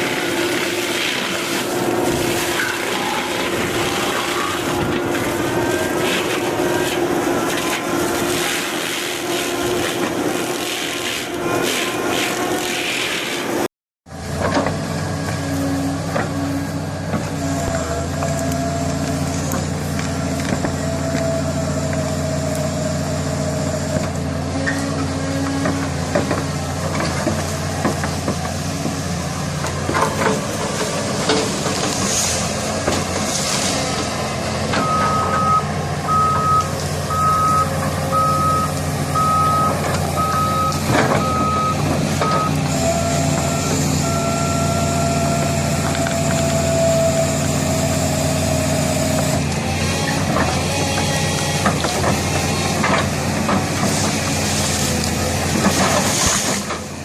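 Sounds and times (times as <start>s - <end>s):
diesel engine running: 0.0s - 57.0s
backup alarm beeping: 34.8s - 42.6s.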